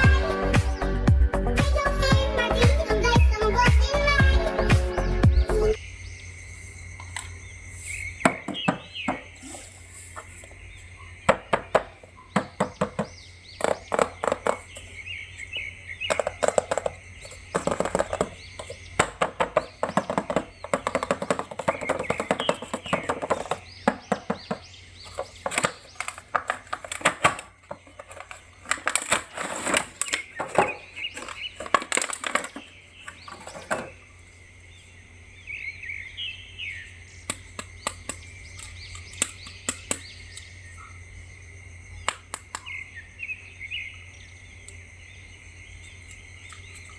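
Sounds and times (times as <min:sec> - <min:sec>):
birds chirping: 0:00.0 - 0:46.9
plastic packaging clicks and crackles: 0:25.1 - 0:33.6.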